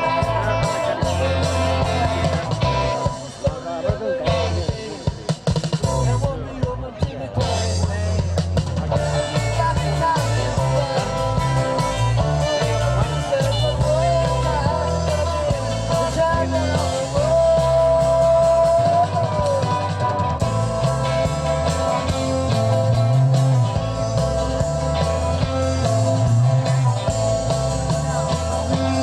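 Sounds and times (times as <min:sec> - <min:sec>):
person singing: 0:00.0 - 0:05.0, 0:09.0 - 0:23.2
live rock band playing: 0:00.0 - 0:29.0.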